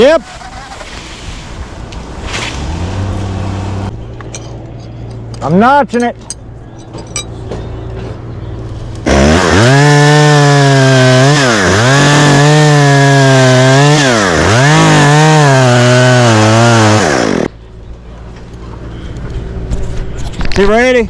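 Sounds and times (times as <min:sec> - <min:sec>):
chainsaw cutting wood: 0:09.0 - 0:17.5.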